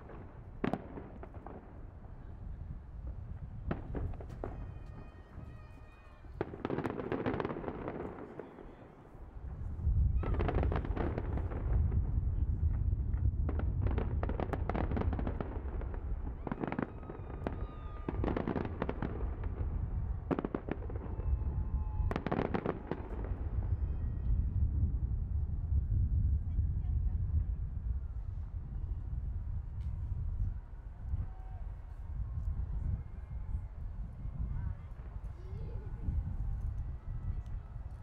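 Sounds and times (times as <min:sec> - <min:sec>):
fireworks crackling and booming: 0:00.0 - 0:38.0.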